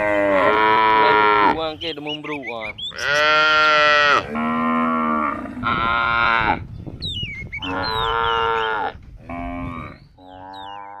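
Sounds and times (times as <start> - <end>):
cattle mooing: 0.0 - 1.6, 2.9 - 6.6, 7.6 - 11.0.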